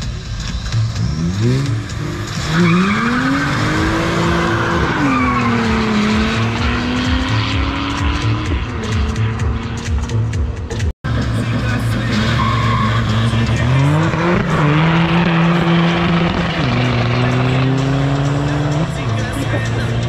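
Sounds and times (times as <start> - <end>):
car engine accelerating hard: 0.7 - 10.4, 11.1 - 20.0.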